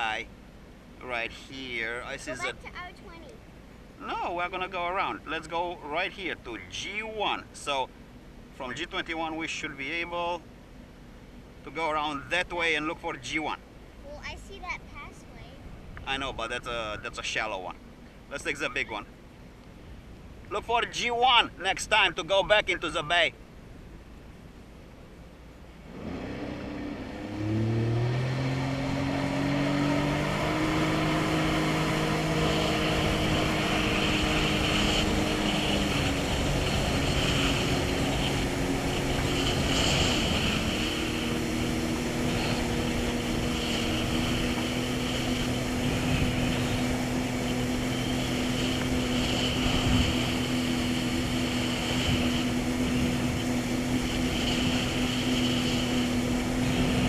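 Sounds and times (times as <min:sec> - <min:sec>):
jet ski engine: 0:00.0 - 0:57.0
rushing water noise: 0:25.9 - 0:57.0.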